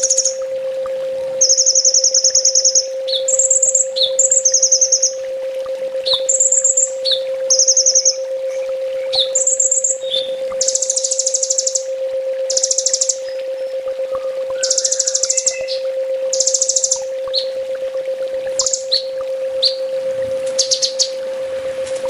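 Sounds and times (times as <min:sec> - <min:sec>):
sunbird song: 0:00.0 - 0:00.4, 0:01.4 - 0:05.2, 0:06.0 - 0:11.9, 0:12.5 - 0:17.6, 0:18.6 - 0:19.9, 0:20.5 - 0:21.2
steady low hum: 0:00.0 - 0:22.0.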